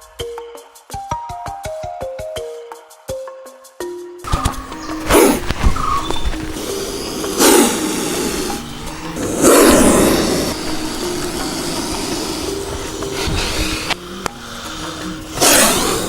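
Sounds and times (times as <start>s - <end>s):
rough animal calls: 4.2s - 16.0s.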